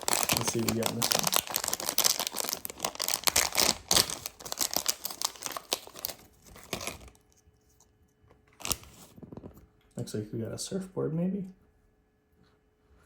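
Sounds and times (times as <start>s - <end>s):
plastic packaging tearing: 0.0s - 7.3s, 8.5s - 9.4s
wrapper crinkling: 0.0s - 7.3s, 8.5s - 9.5s.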